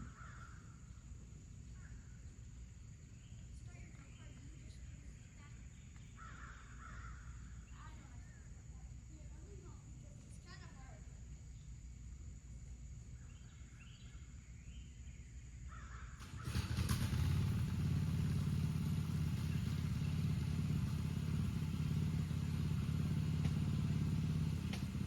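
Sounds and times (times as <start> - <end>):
faint bird chirps: 0.0 - 12.2, 12.8 - 16.4
small engine running: 16.2 - 25.0.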